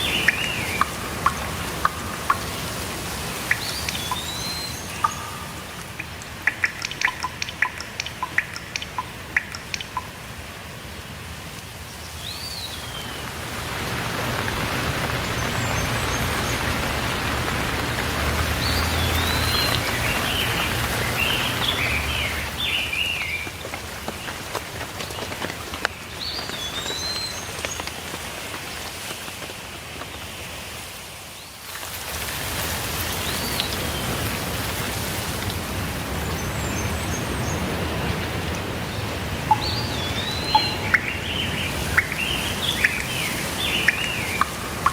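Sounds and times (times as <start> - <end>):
bird whistling: 0.0 - 10.0, 39.5 - 44.9
bird chattering: 0.0 - 10.1, 39.5 - 44.9
drips hitting a surface: 0.0 - 10.2, 39.5 - 44.9
steady rain: 0.0 - 44.9.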